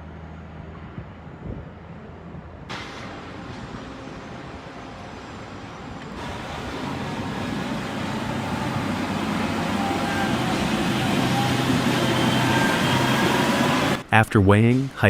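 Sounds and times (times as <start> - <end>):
high whining tones: 2.7 - 14.2
truck diesel engine running: 2.7 - 14.2.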